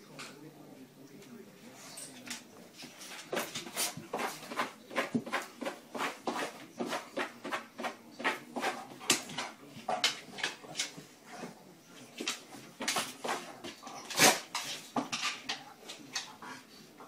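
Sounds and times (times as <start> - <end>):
dog claws scratching a doormat: 3.0 - 11.6, 12.2 - 15.6.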